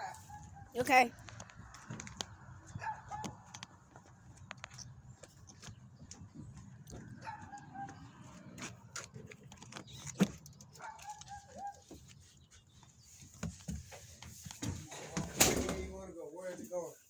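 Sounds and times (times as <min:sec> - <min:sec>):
knocks and bumps: 0:13.4 - 0:16.1.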